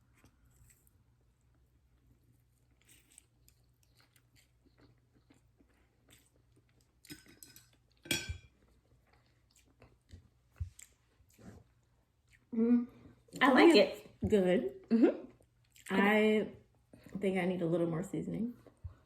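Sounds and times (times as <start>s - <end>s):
faint chewing: 0.0s - 13.4s, 15.2s - 16.0s.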